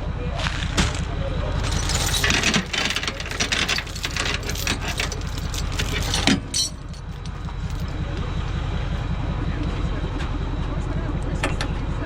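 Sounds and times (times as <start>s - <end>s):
clicks and rattles: 1.6s - 8.4s.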